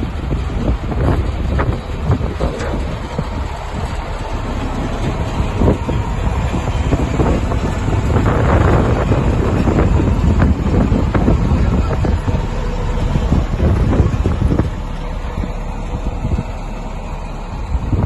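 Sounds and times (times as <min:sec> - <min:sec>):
rattles and knocks: 0:00.0 - 0:16.4
truck engine rumbling: 0:00.0 - 0:18.0
wind buffeting microphone: 0:00.0 - 0:18.0.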